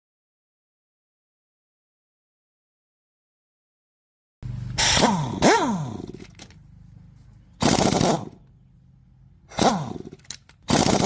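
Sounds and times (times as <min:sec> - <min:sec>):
scooter engine idling and revving: 0:04.4 - 0:06.4, 0:07.4 - 0:11.0.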